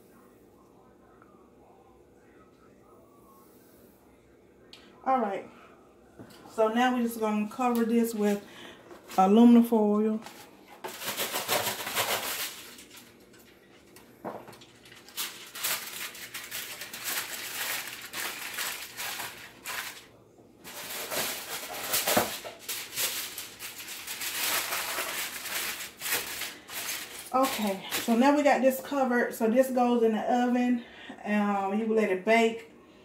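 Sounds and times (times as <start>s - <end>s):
aluminum foil crinkling: 7.6s - 28.5s.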